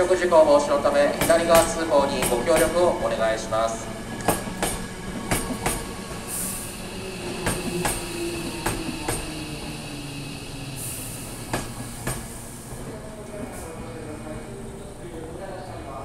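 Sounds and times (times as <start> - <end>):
train wheels clicking over rail joints: 4.2 - 6.3, 7.2 - 9.7, 11.3 - 12.4.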